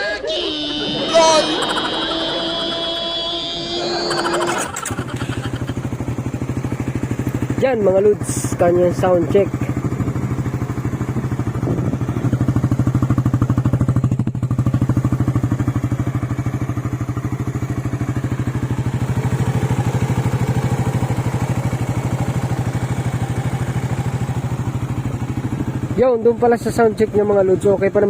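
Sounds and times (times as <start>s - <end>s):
motorcycle engine idling: 0.5s - 28.0s.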